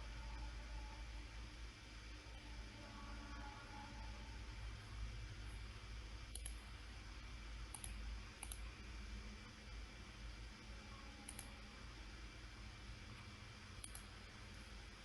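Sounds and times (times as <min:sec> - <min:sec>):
steady low hum: 0:00.0 - 0:15.0
computer mouse clicks: 0:06.3 - 0:06.6, 0:07.7 - 0:08.7, 0:11.2 - 0:11.6, 0:13.8 - 0:14.1.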